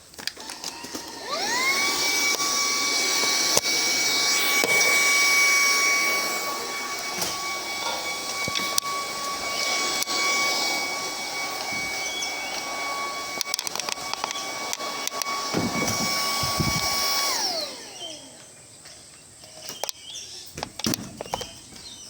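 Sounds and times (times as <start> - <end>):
vacuum cleaner motor whine: 0.2 - 19.0
suction hiss: 1.2 - 18.0
nozzle knocking: 15.5 - 17.0.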